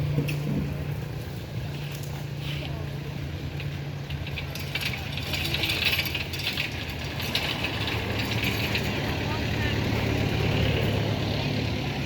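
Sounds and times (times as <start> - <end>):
rapid small clicks and rattles: 3.2 - 10.2.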